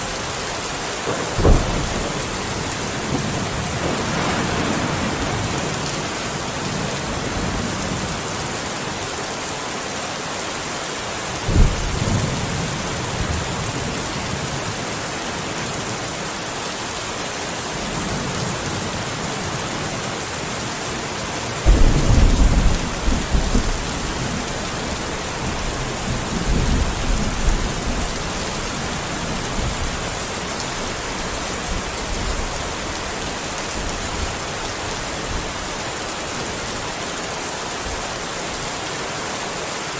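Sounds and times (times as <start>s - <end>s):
steady rain: 0.0s - 39.9s
thunder: 1.1s - 8.2s, 11.5s - 13.8s, 21.7s - 30.1s.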